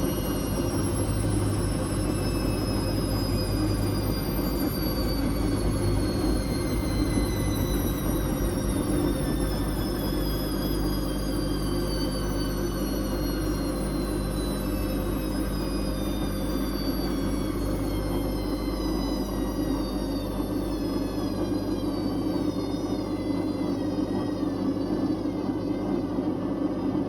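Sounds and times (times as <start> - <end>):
washing machine spin slowing: 0.0 - 27.0.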